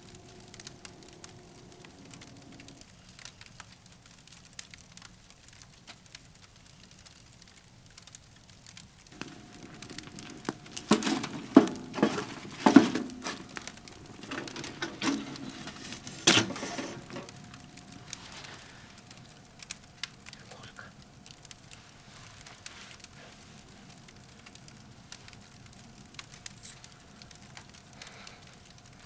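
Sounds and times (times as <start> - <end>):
crinkling and sharp clicks: 0.0 - 29.0
faint crackles: 0.0 - 29.0.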